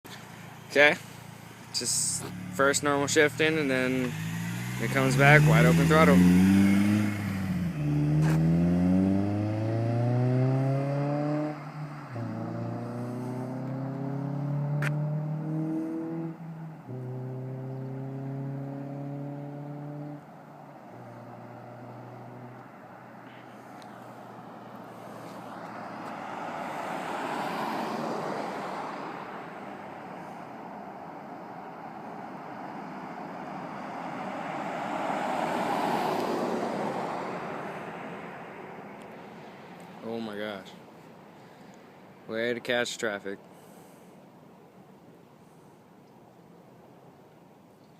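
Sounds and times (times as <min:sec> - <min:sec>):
car engine accelerating: 0:00.4 - 0:30.4.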